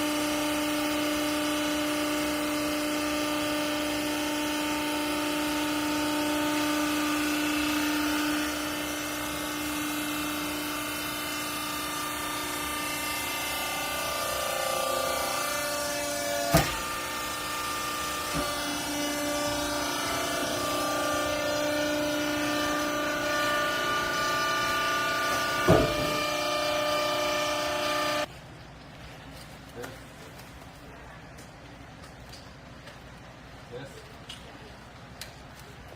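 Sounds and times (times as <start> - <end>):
hydraulic motor and pump whine: 0.0 - 28.3
sharp knock: 25.6 - 26.2.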